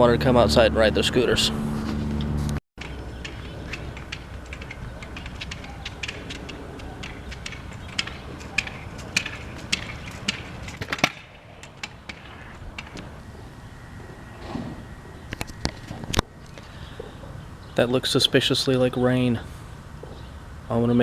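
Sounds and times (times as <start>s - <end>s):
scooters rolling over pavement: 1.8s - 17.5s
sharp clicks and knocks: 1.9s - 13.2s.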